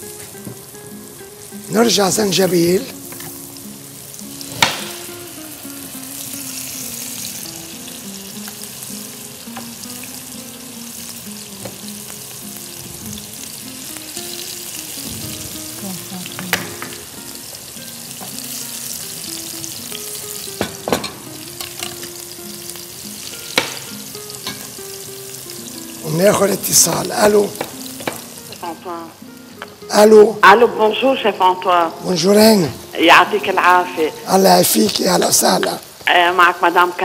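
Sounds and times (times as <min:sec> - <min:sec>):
chicken sizzling in a pan: 0:00.0 - 0:29.4
sharp knocks in pan: 0:04.5 - 0:05.1, 0:16.4 - 0:17.0, 0:20.6 - 0:22.0, 0:23.5 - 0:24.7, 0:27.6 - 0:28.3.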